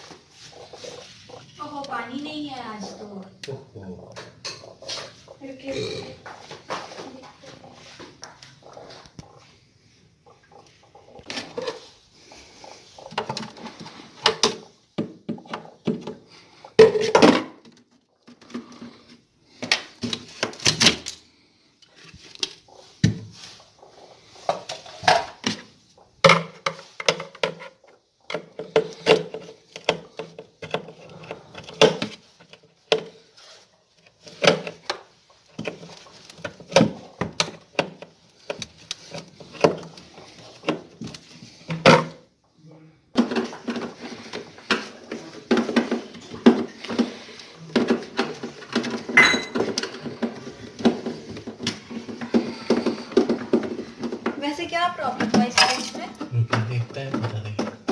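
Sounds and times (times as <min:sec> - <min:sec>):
hard objects clinking and clattering: 0:43.2 - 0:54.4.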